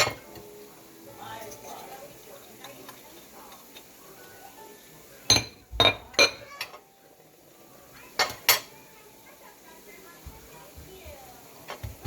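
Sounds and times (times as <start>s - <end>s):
kitchenware clinking: 0.0s - 7.0s, 8.0s - 8.9s, 11.6s - 12.0s.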